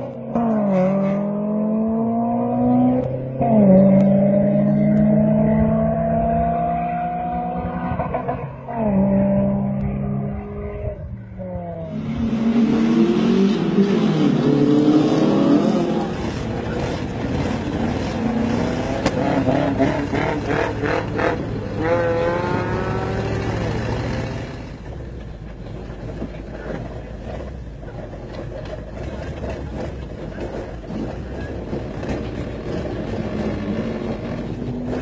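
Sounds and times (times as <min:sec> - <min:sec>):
engine revving through gears: 0:00.0 - 0:24.8.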